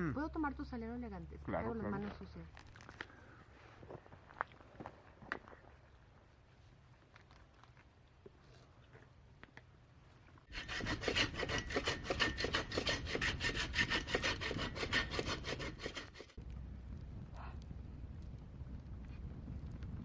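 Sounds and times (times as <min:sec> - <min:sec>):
salt grinder rasping: 0:10.5 - 0:16.4.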